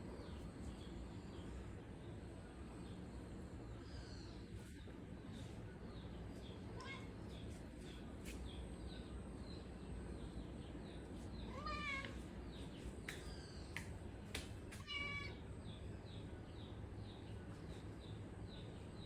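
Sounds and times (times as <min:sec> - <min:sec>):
cat meowing: 0:14.8 - 0:15.4.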